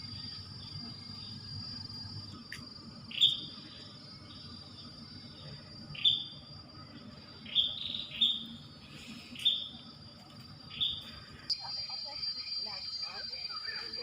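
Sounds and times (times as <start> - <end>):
high-pitched whine: 0.0 - 14.0
bird chirping: 7.4 - 8.6.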